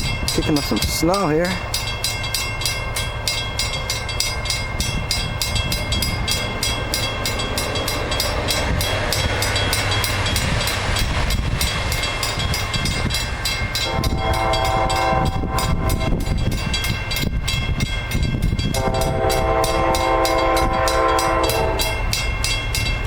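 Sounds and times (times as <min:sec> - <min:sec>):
train rumbling past: 0:00.0 - 0:23.0
train horn: 0:13.8 - 0:16.4, 0:18.7 - 0:22.1.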